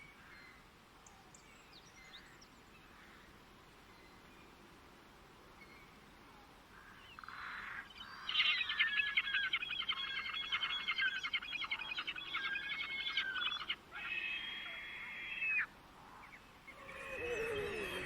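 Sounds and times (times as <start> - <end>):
bird singing: 7.0 - 13.8, 16.2 - 18.0.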